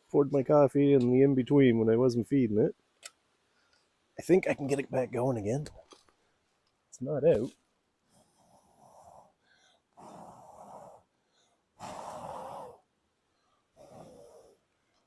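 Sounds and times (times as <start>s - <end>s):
person blowing onto embers: 10.0s - 11.0s, 11.8s - 12.9s.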